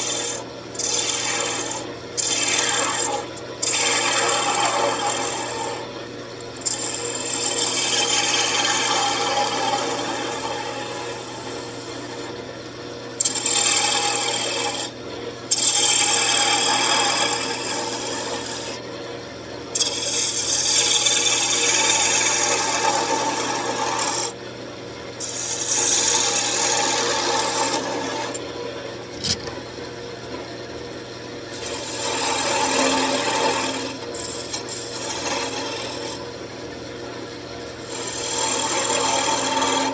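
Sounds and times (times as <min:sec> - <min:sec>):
turning tool cutting wood: 0:00.0 - 0:05.9, 0:06.6 - 0:11.1, 0:13.2 - 0:14.9, 0:15.5 - 0:18.8, 0:19.8 - 0:24.3, 0:25.2 - 0:28.4, 0:29.1 - 0:29.6, 0:31.6 - 0:36.2, 0:37.8 - 0:39.9.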